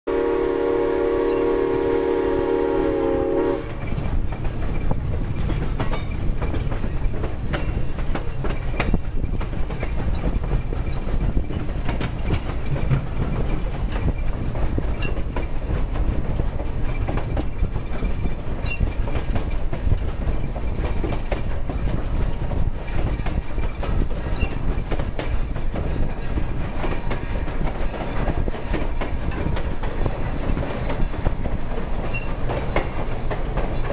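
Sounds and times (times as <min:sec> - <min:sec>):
train horn chord: 0:00.1 - 0:03.7
train wheels clicking over rails: 0:00.2 - 0:33.9.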